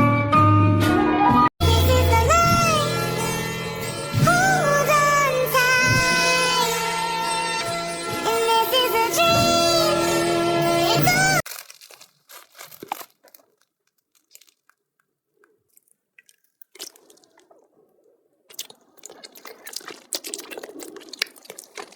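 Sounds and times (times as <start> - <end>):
crunching and chewing: 11.2 - 21.9.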